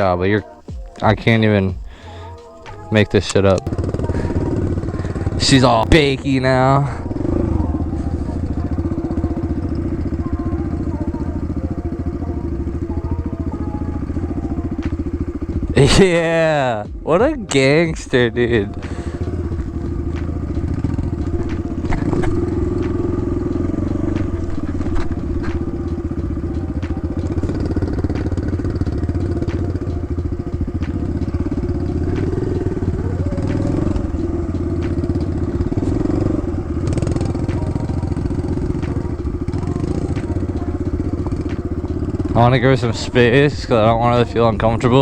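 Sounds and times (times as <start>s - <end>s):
dirt bike engine running: 0.0s - 45.0s.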